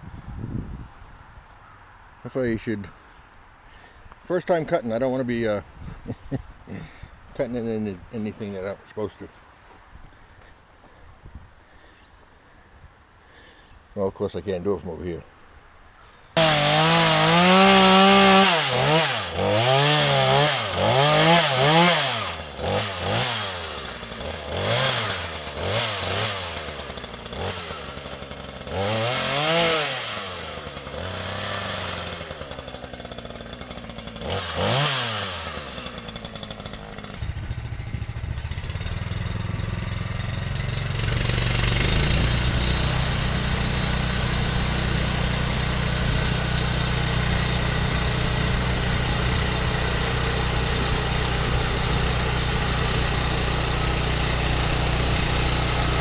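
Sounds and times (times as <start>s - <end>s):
small gasoline engine revving: 16.4s - 56.0s.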